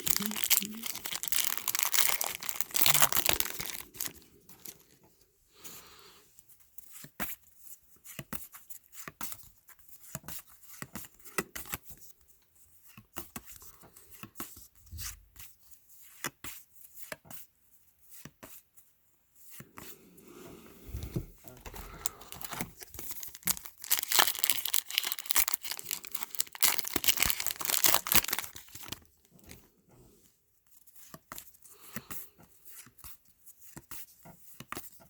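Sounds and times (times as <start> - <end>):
card pack wrapper tearing: 0.0 - 4.8, 21.9 - 29.1
cards clicking and rustling: 21.6 - 29.0.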